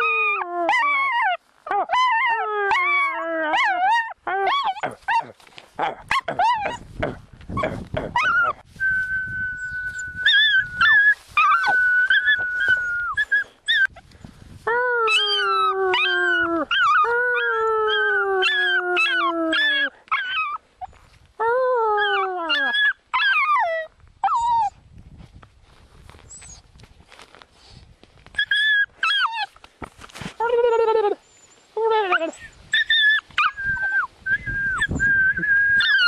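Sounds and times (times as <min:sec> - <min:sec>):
small dog yipping and howling: 0:00.0 - 0:05.3, 0:06.1 - 0:06.9, 0:08.1 - 0:08.6, 0:09.6 - 0:14.0, 0:14.7 - 0:24.8, 0:28.4 - 0:29.6, 0:30.6 - 0:36.0
person whistling: 0:08.8 - 0:13.4, 0:33.6 - 0:36.0.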